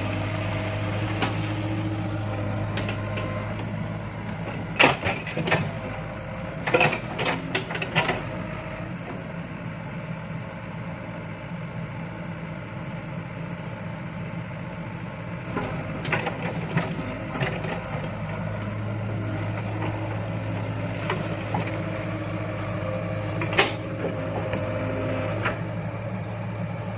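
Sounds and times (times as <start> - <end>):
excavator diesel engine running: 0.0 - 26.9.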